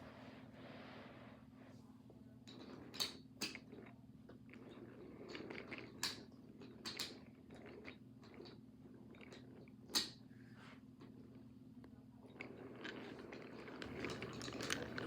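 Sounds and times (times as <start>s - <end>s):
wooden toy train clicks and knocks: 2.5s - 3.7s, 5.2s - 7.3s, 9.2s - 10.2s, 12.4s - 15.0s.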